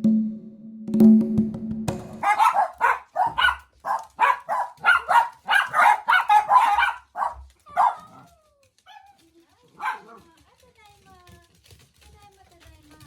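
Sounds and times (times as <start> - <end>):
dog barking sharply: 2.2 - 8.2, 9.8 - 10.2.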